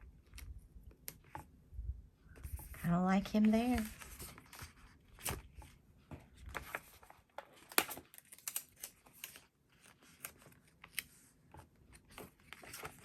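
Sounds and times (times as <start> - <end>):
stickers clicking and crinkling: 6.6 - 11.2.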